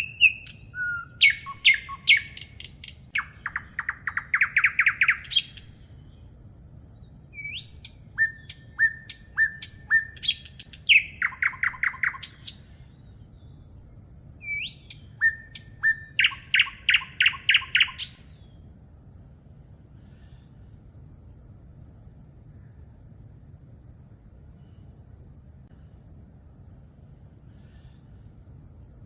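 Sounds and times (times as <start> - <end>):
songbird singing: 0.0 - 21.6.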